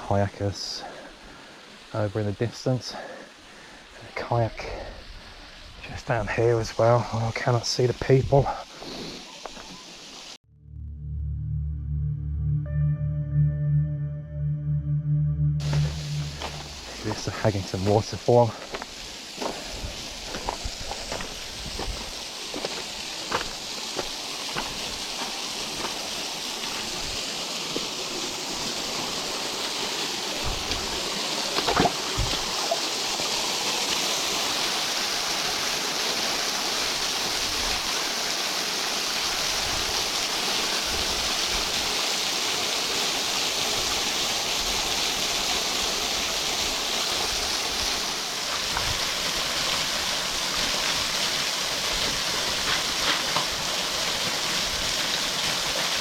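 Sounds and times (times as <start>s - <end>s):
waterfall rushing and splashing: 15.6s - 56.0s.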